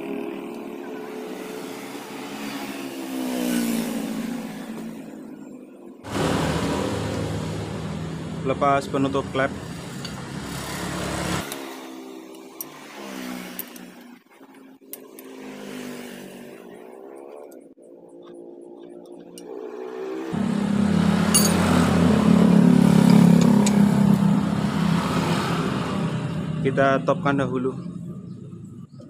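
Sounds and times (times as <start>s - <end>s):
vehicle engine running: 6.1s - 11.4s, 18.3s - 29.0s.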